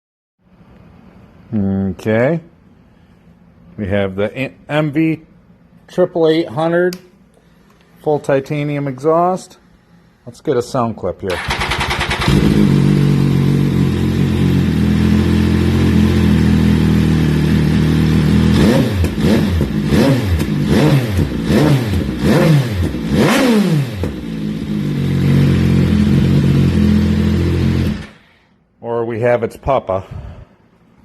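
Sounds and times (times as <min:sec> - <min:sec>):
engine revving: 0:11.4 - 0:28.2.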